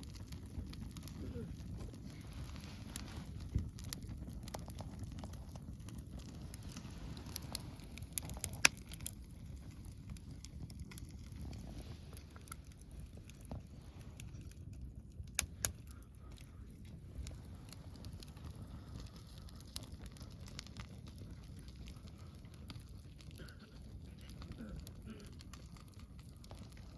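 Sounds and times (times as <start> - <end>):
campfire crackling and popping: 0.0 - 26.9
low steady rumble: 0.0 - 26.9.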